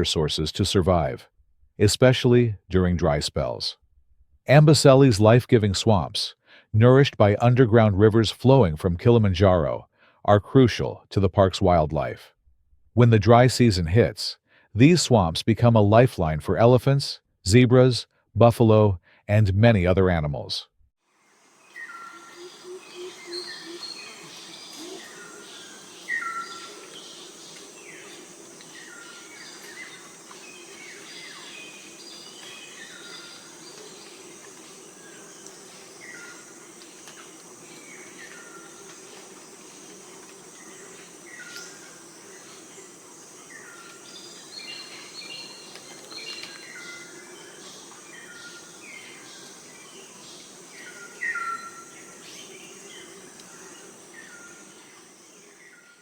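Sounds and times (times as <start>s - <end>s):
birds chirping: 21.4s - 56.0s.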